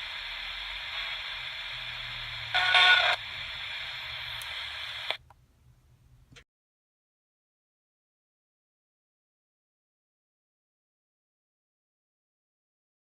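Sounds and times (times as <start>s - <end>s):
radio static hiss: 0.0s - 5.2s
radio switch click: 3.9s - 5.2s.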